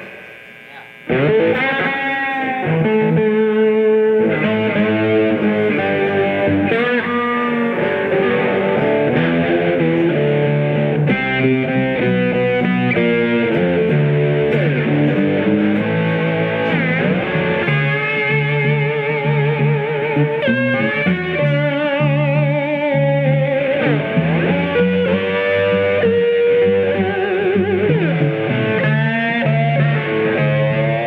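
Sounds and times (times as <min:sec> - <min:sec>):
guitar bass line: 0:00.0 - 0:31.0
lead guitar bending notes: 0:00.0 - 0:31.0.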